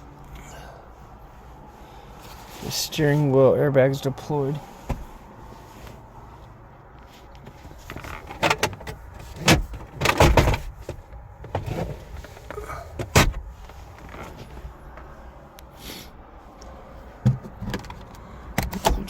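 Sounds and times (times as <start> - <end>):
car door clunks and knocks: 4.8 - 5.2, 8.0 - 13.5, 17.2 - 19.0.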